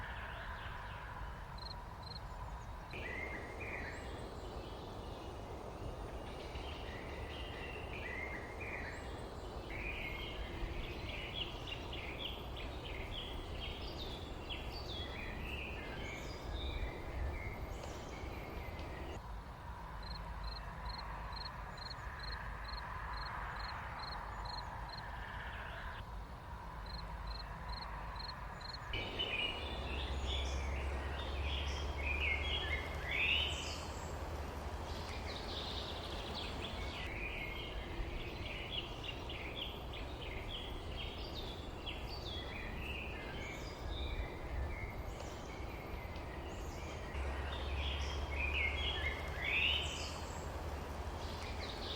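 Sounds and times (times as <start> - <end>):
small birds chirping: 0.0 - 19.2, 26.8 - 51.9
low steady rumble: 28.9 - 51.9.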